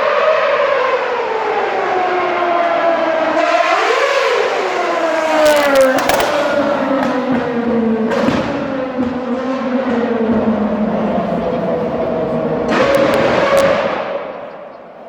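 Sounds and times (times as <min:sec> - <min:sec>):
racing car engine at high revs: 0:00.0 - 0:15.0
sharp cracks: 0:04.7 - 0:09.0.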